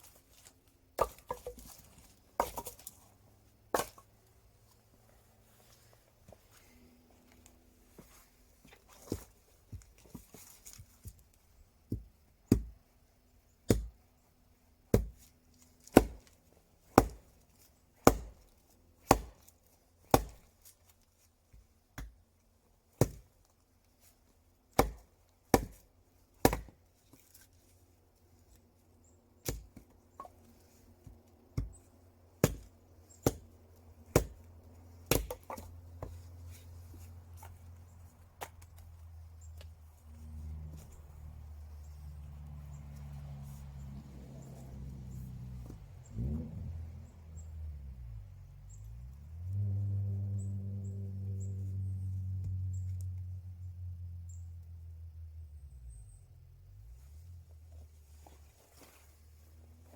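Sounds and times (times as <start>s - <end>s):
wood being chopped: 1.0s - 3.0s, 3.7s - 4.1s, 11.8s - 12.8s, 13.6s - 14.0s, 14.8s - 17.4s, 18.0s - 20.6s, 23.0s - 23.3s, 24.7s - 26.8s, 29.4s - 30.3s, 31.0s - 36.2s.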